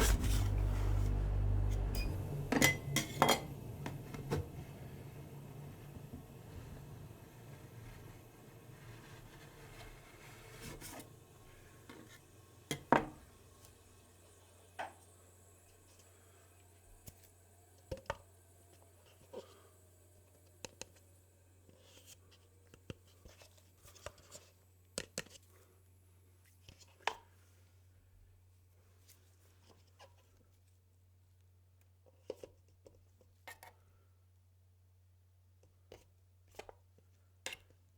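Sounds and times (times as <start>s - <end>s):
steady low hum: 0.0s - 22.3s.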